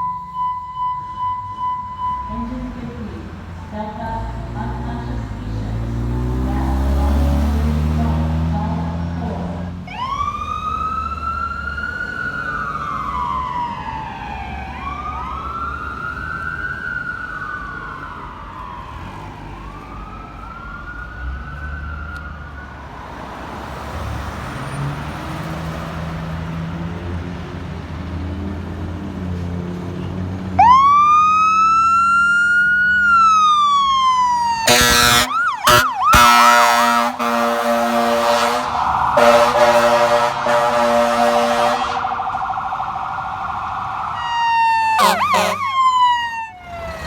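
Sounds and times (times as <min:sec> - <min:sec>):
second siren: 0:00.0 - 0:02.8, 0:09.9 - 0:23.2, 0:30.6 - 0:47.0
siren wailing: 0:00.0 - 0:02.8, 0:09.9 - 0:23.0, 0:30.6 - 0:47.0
engine and road rumble: 0:00.0 - 0:47.0
air horn blasting: 0:34.6 - 0:42.3, 0:44.9 - 0:45.9.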